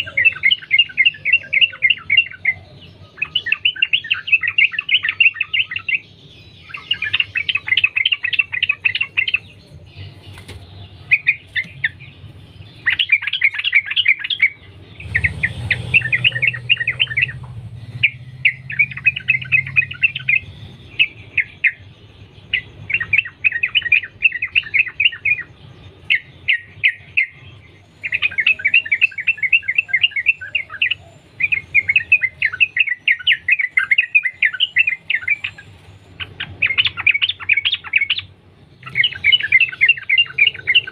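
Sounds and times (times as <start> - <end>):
bird singing chattering notes: 0.0 - 40.9.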